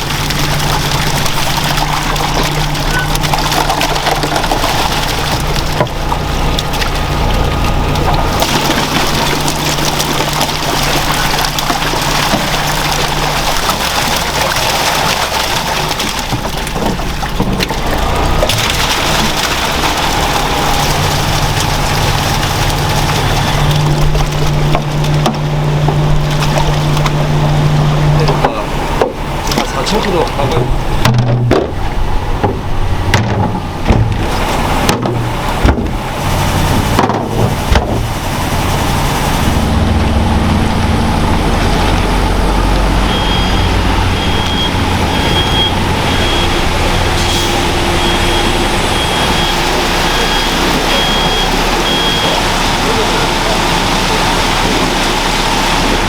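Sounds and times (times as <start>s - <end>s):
crunching and clattering: 0.0s - 27.2s
low machine hum: 0.0s - 56.0s.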